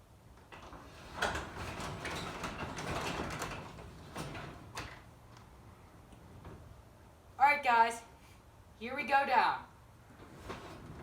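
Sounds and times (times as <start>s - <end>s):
garage door running up tracks: 0.4s - 5.3s.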